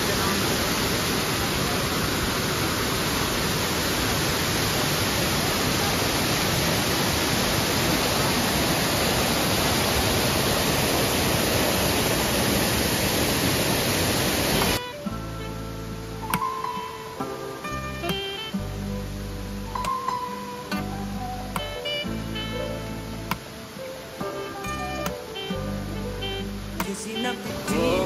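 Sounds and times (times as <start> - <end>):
waterfall rushing: 0.0 - 28.0
soft guitar music: 14.6 - 28.0.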